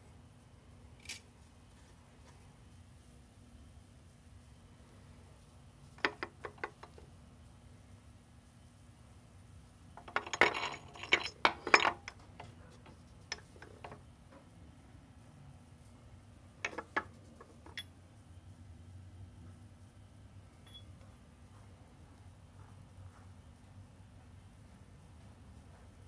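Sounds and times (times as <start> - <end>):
small hard parts clinking: 6.0 - 7.0, 10.0 - 14.0, 16.6 - 17.9.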